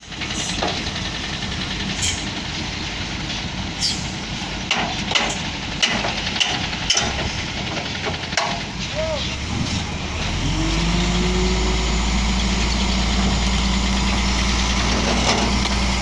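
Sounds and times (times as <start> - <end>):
diesel machinery rumbling: 0.0 - 16.0
machinery squeaks and clanks: 3.7 - 4.2.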